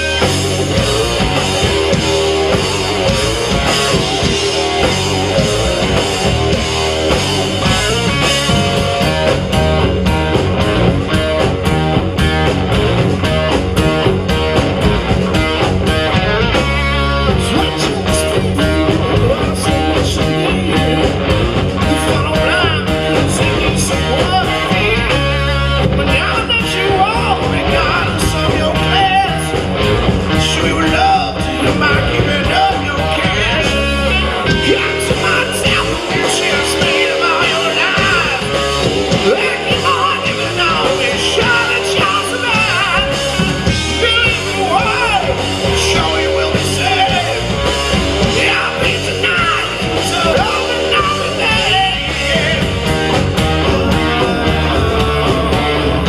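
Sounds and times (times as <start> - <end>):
bass: 0.0 - 56.0
distorted electric guitars: 0.0 - 56.0
drums: 0.0 - 56.0
person singing: 17.3 - 29.6, 30.3 - 52.9, 53.5 - 56.0.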